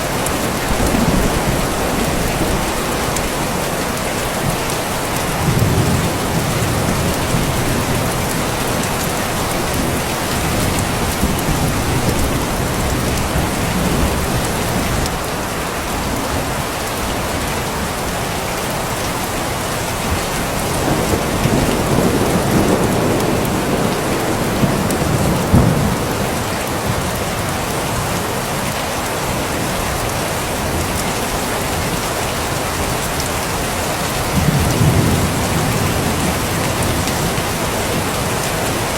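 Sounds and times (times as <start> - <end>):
thunder rumbling: 0.0 - 16.5, 20.0 - 27.4, 34.1 - 38.9
heavy rain: 0.0 - 38.9.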